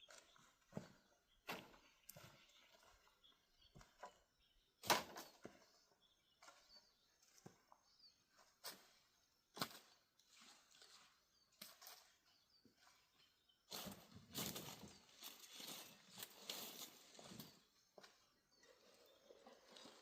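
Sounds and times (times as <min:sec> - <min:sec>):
dry corn plants rustling: 0:08.4 - 0:17.9.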